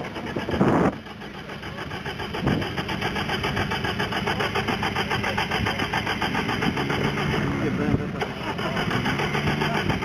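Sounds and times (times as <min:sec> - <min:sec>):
off-road vehicle engine running: 0:00.0 - 0:10.0.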